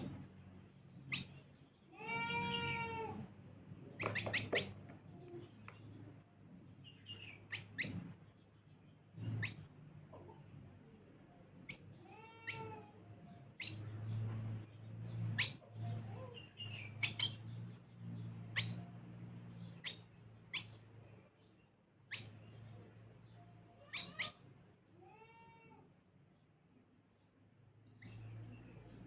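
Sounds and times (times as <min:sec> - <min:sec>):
sparrows chirping: 0:00.0 - 0:24.6, 0:26.3 - 0:29.0
rising and falling bird calls: 0:04.0 - 0:06.1, 0:13.6 - 0:19.0, 0:19.6 - 0:20.8, 0:23.8 - 0:24.4.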